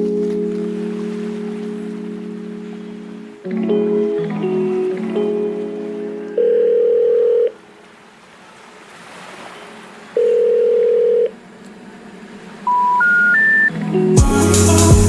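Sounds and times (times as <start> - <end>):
telephone ringing beeps: 6.4 - 7.6, 10.2 - 11.3, 12.7 - 13.7
rising three-note telephone tones: 12.7 - 13.8.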